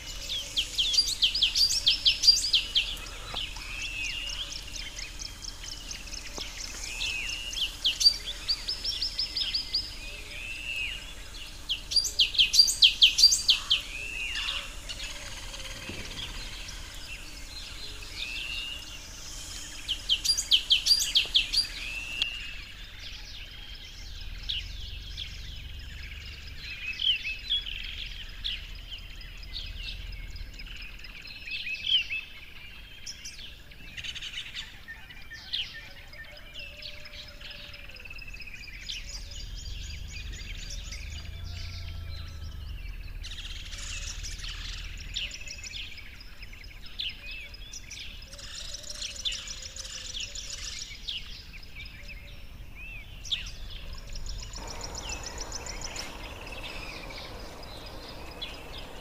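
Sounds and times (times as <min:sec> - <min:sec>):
background hiss: 0:00.0 - 0:35.7, 0:36.3 - 0:59.0
songbirds chirping: 0:00.0 - 0:59.0
bursts of loud high bird notes: 0:54.0 - 0:59.0.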